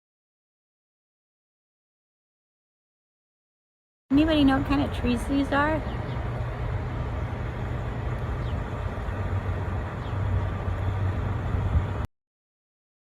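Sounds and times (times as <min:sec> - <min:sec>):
road vehicles rumbling: 0:04.1 - 0:12.1.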